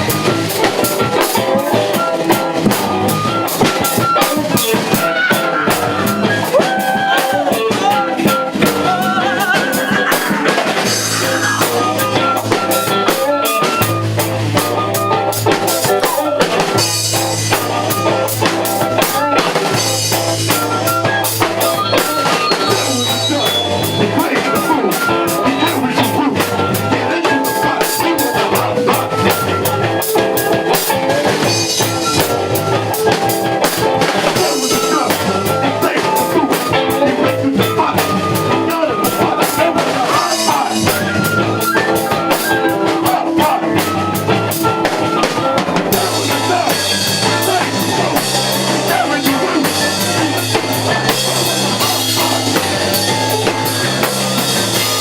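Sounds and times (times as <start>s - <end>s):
drum kit beat: 0.0s - 55.0s
live rock band playing: 0.0s - 55.0s.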